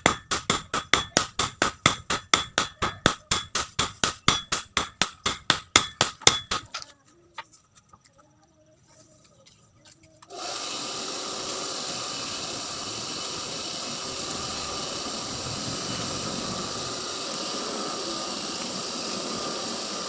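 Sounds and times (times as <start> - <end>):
electric motor whining: 10.3 - 20.0.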